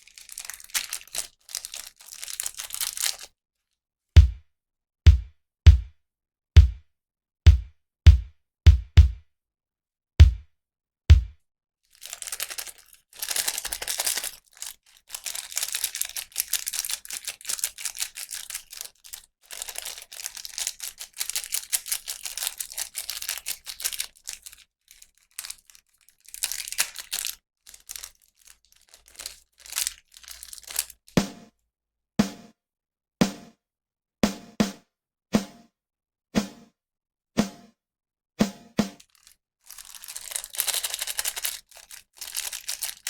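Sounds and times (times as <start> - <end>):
plastic packaging crinkling and tearing: 0.0 - 3.3, 11.9 - 31.2, 39.0 - 43.0.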